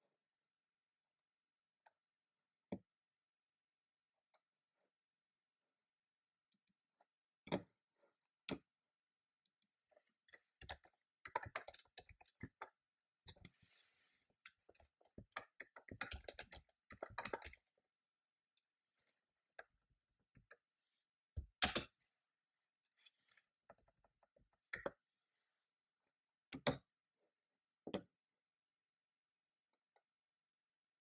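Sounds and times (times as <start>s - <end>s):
typing on computer keyboard: 15.4s - 17.6s.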